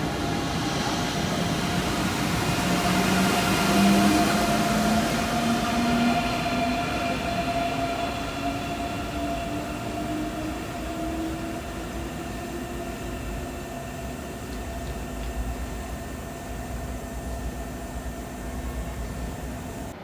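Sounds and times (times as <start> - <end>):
train motor whine rising: 0.0 - 20.0
train pulling away: 0.0 - 20.0.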